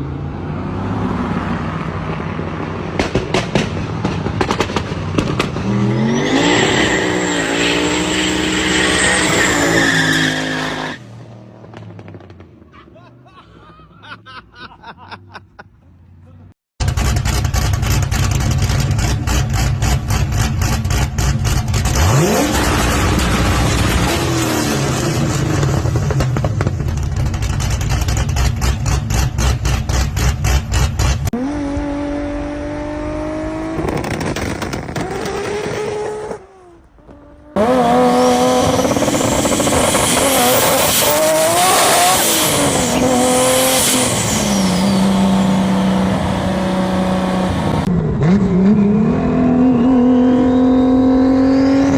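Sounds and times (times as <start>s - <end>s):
car engines revving: 0.0s - 12.8s, 16.9s - 51.9s
exhaust pops and bangs: 2.9s - 5.7s, 11.6s - 12.6s, 25.8s - 31.3s, 33.7s - 36.4s.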